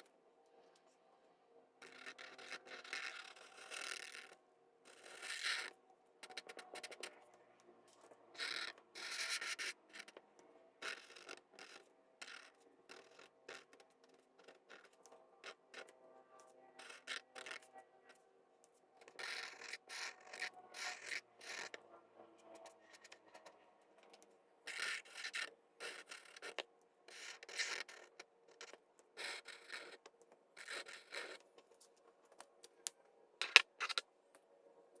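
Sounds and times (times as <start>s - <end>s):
pencil scratching on paper: 1.8s - 7.1s, 10.8s - 16.0s, 16.8s - 18.2s, 19.0s - 21.8s, 24.7s - 31.4s.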